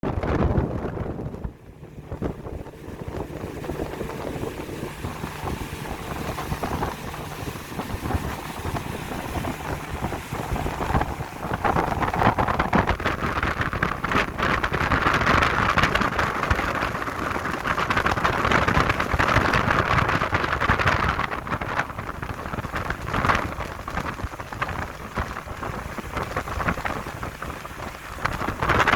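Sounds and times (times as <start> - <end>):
boat motor running: 0.0 - 28.9
wind buffeting microphone: 0.0 - 28.9.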